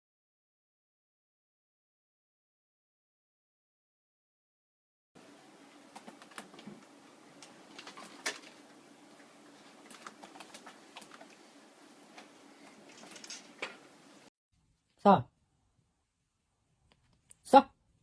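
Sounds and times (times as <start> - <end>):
low room noise: 5.2 - 18.0
faint clicks and taps: 5.7 - 14.1.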